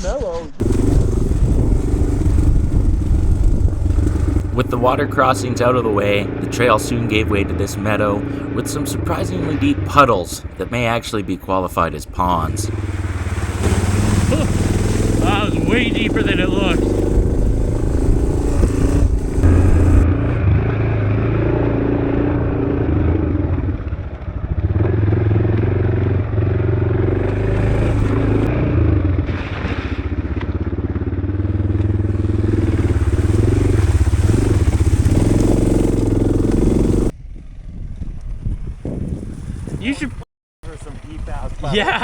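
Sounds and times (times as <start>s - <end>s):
wind rush on microphone: 0.6s - 4.8s, 12.7s - 20.4s, 32.1s - 40.2s
motorcycle engine under load: 0.6s - 8.6s, 12.7s - 39.6s, 40.6s - 42.0s.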